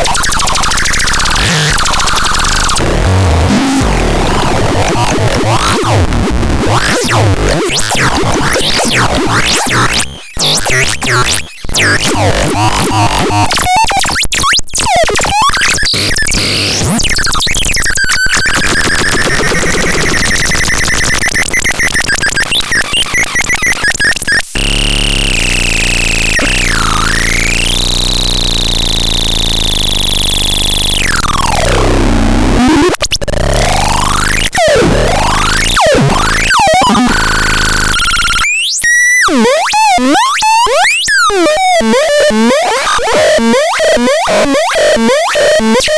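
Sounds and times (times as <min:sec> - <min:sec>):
chaotic electronic synthesizer sounds: 0:00.0 - 0:45.9
swooping buzzing synth tone: 0:24.6 - 0:31.9.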